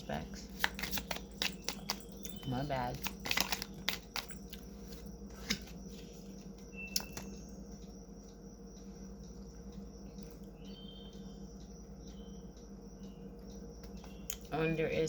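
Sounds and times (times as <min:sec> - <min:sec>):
low room hum: 0:00.0 - 0:15.0
cards being shuffled: 0:00.5 - 0:02.0, 0:02.9 - 0:04.3
high chirp: 0:10.5 - 0:14.4.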